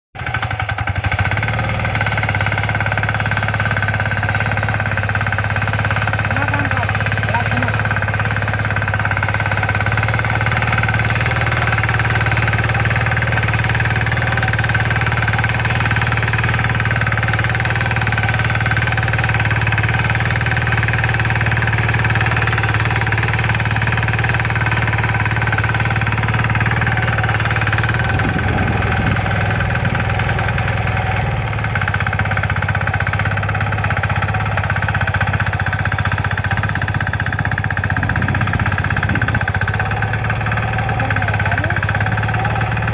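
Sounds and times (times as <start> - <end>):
diesel engine running: 0.2 - 42.9.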